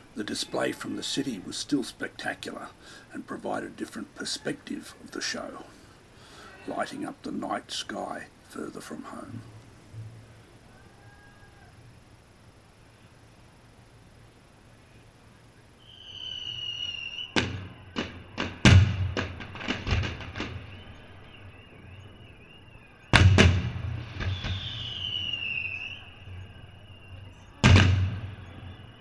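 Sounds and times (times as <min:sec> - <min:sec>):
fireworks whistling: 0:15.8 - 0:29.0
fireworks bangs and cracks: 0:17.3 - 0:21.0, 0:23.1 - 0:25.7, 0:27.6 - 0:28.6.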